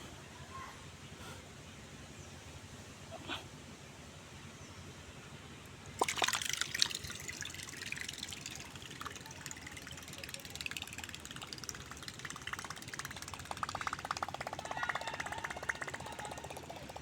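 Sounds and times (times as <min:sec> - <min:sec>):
water splashing and churning: 0:06.0 - 0:17.0.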